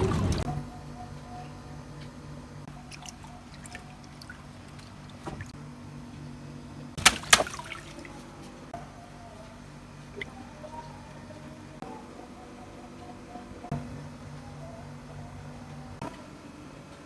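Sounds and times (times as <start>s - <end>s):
water trickling: 0.0s - 0.5s, 2.7s - 5.5s.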